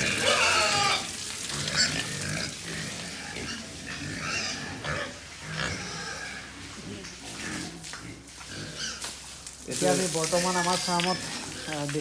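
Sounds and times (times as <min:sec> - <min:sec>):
pigs squealing: 0:00.0 - 0:06.5, 0:08.5 - 0:09.0
pigs grunting: 0:00.0 - 0:09.0.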